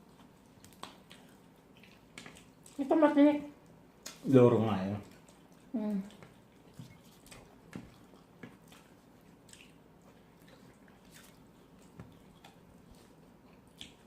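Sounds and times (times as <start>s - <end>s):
people chewing with mouth clicks: 0.0s - 14.0s.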